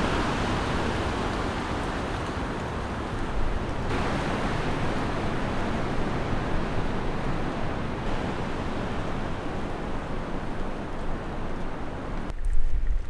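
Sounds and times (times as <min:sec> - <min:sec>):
strong wind blowing: 0:03.4 - 0:12.3.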